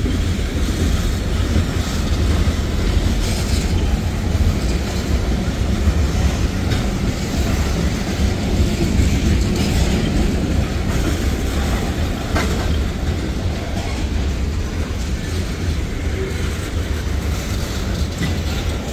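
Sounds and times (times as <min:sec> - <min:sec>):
train wheels rumbling: 0:00.0 - 0:18.9
wheels clicking over rail joints: 0:00.0 - 0:18.9.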